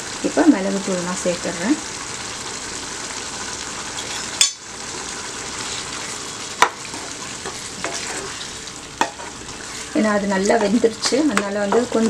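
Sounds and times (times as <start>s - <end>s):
gravy sizzling in a pan: 0.0s - 12.0s
wooden spatula stirring: 5.6s - 12.0s.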